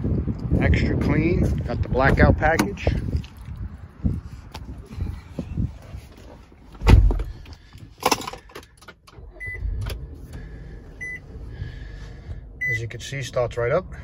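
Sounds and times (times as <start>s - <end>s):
car engine starting and idling: 6.7s - 14.0s
heavy thump: 6.8s - 7.4s.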